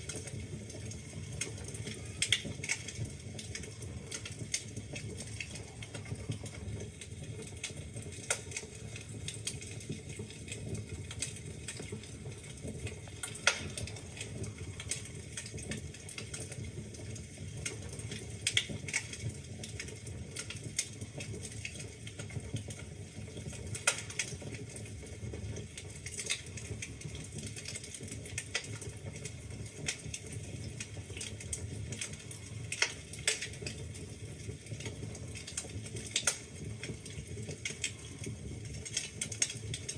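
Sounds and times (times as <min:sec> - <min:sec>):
low rumble of flames: 0:00.0 - 0:39.9
logs snapping and popping: 0:13.2 - 0:14.0, 0:36.2 - 0:36.4.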